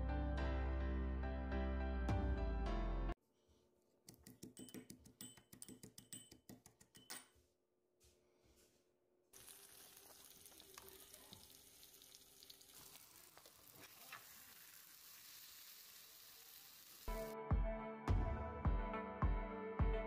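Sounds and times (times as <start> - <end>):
potatoes sizzling in oil: 9.4 - 17.1.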